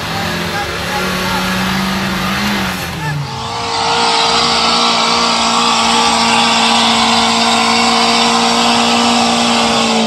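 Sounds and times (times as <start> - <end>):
engine revving high under load: 0.0 - 10.0.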